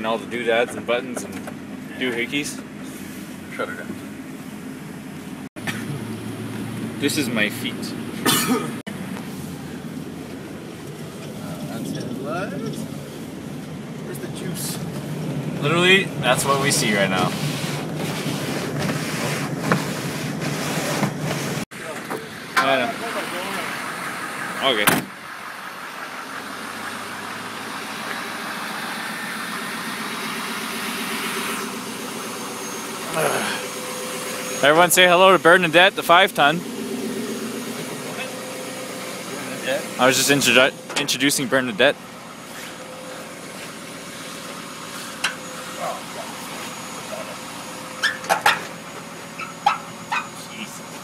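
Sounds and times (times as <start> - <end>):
diesel truck engine running: 0.0 - 51.0
dog barking: 49.4 - 50.4.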